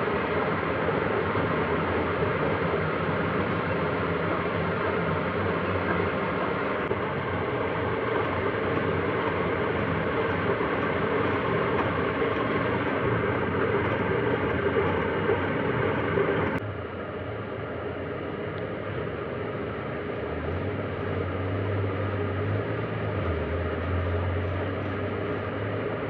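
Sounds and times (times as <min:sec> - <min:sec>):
machine tool machining metal: 0:00.0 - 0:16.6.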